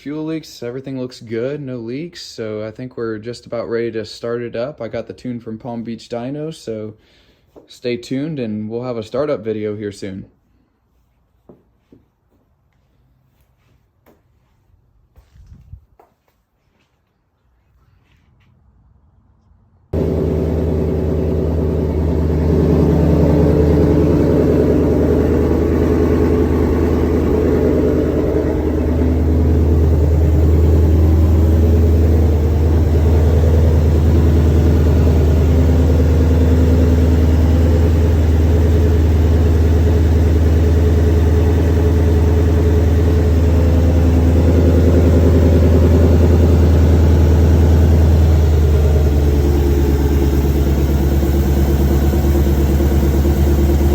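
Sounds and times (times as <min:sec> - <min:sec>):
supercharged car engine idling: 0:20.0 - 0:53.9.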